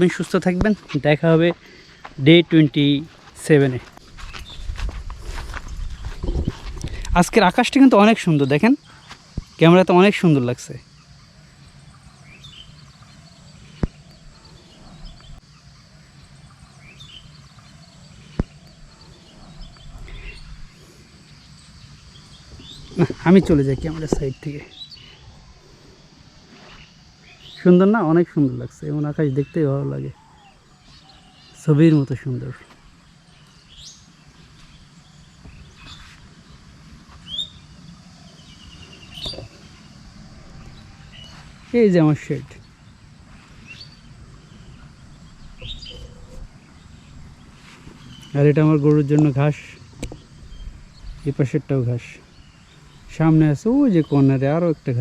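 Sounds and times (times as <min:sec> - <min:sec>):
faint high insect hum: 0:00.0 - 0:55.0
low steady background rumble: 0:30.1 - 0:55.0.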